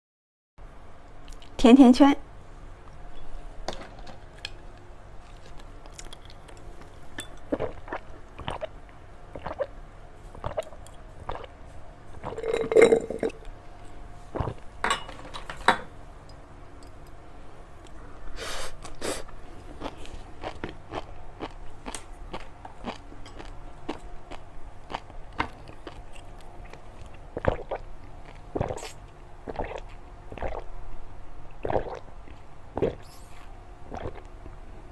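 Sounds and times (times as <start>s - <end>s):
chewing crisp crunches: 5.2s - 8.7s, 18.8s - 30.6s.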